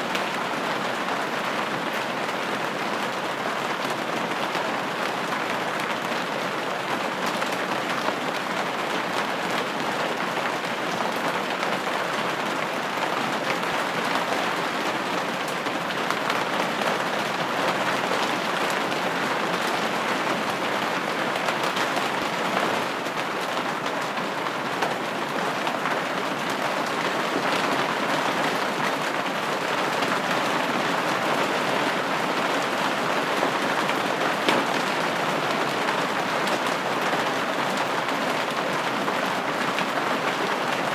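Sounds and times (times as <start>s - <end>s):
rain pattering on window: 0.1s - 40.9s.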